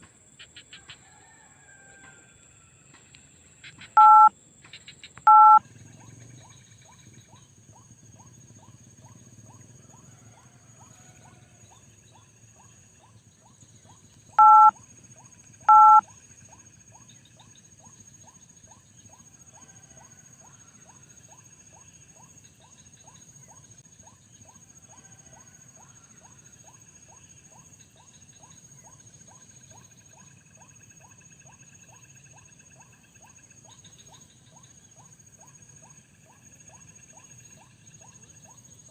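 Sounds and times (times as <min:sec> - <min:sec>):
two-tone electronic beeps: 0:04.0 - 0:04.3, 0:05.3 - 0:05.6, 0:14.4 - 0:14.8, 0:15.7 - 0:16.0.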